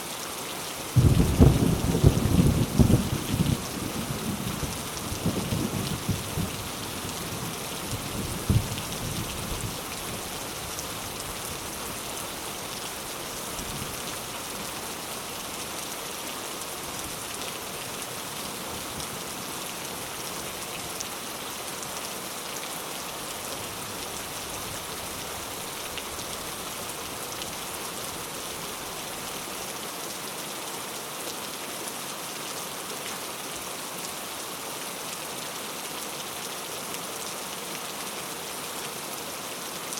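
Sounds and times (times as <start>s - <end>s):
heavy rain: 0.0s - 39.9s
sharp thunder crack: 1.0s - 3.0s
low thunder rumble: 1.0s - 6.6s.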